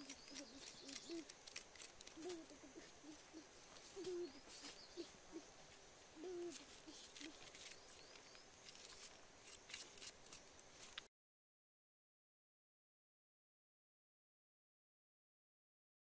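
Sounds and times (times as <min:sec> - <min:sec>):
bird cooing: 0:00.0 - 0:01.4, 0:02.1 - 0:07.5
knife scraping pumpkin seeds: 0:00.0 - 0:03.2, 0:06.4 - 0:11.1.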